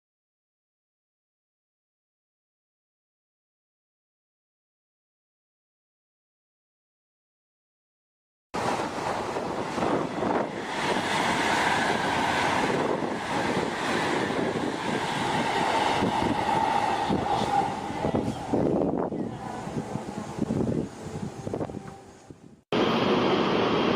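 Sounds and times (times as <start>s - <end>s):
train rushing at speed: 8.6s - 23.9s.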